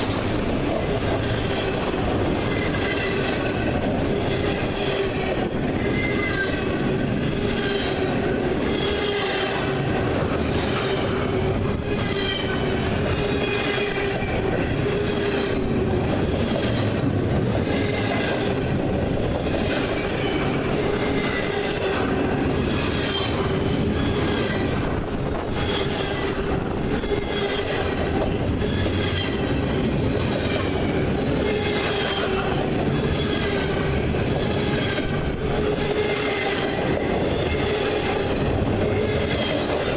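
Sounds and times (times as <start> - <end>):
freight train cars rolling past: 0.0 - 39.9
wavering wheel squeal: 1.2 - 9.6.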